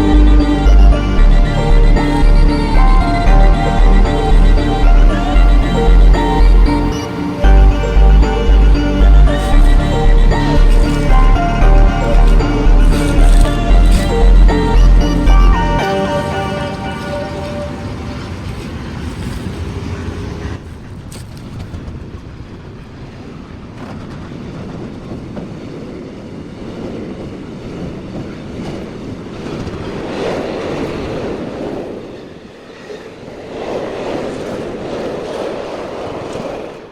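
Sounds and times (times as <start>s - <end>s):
train wheels on rails: 16.2s - 36.9s.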